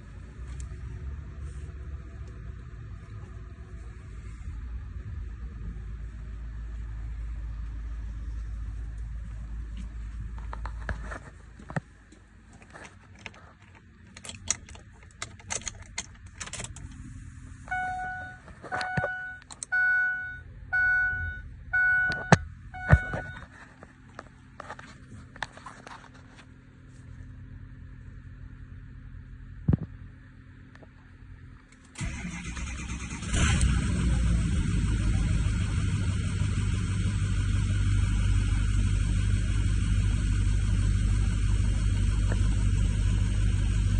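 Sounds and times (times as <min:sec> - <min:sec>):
small clicks and rattles: 0:12.5 - 0:17.0
dashboard warning chimes: 0:17.7 - 0:23.5.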